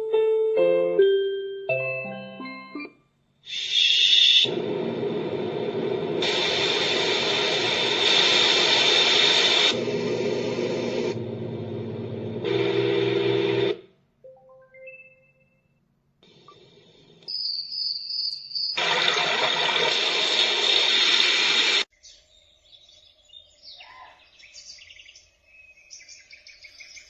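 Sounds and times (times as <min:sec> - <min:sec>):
white noise machine hiss: 0:03.5 - 0:11.2.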